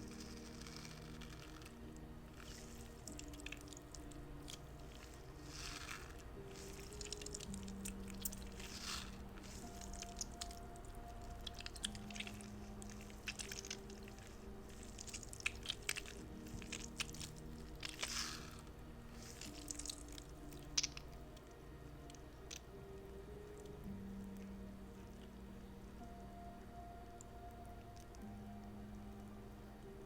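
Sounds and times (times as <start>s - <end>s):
squishy toy squelching: 0.0s - 21.2s
soft background music: 0.0s - 30.0s.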